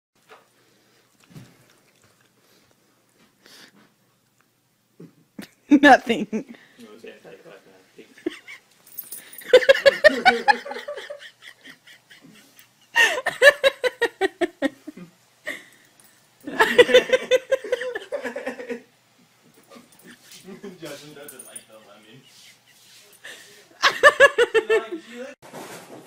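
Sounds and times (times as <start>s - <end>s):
person laughing hard: 9.5s - 15.6s, 16.5s - 18.8s, 23.8s - 25.0s.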